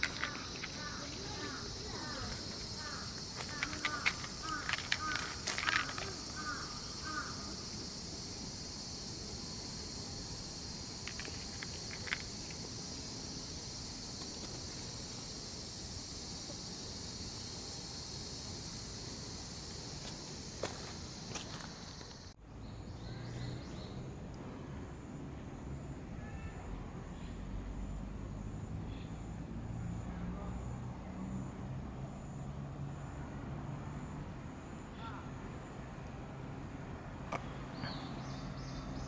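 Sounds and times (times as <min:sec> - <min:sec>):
insect drone: 0:00.0 - 0:23.0.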